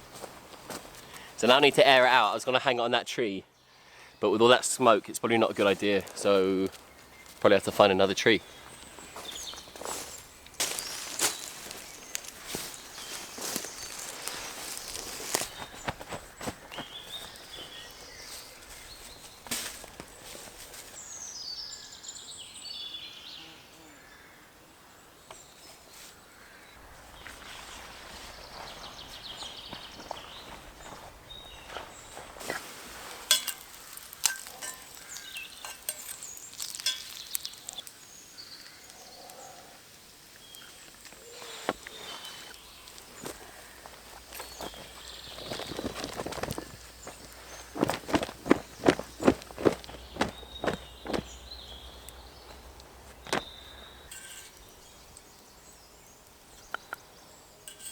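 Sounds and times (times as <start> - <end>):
footsteps on woodland floor: 0.0 - 1.7, 5.4 - 21.1, 26.8 - 37.8, 40.9 - 54.3
birds chirping: 0.0 - 57.9
rustling: 8.6 - 21.2, 26.8 - 38.9, 40.4 - 55.3.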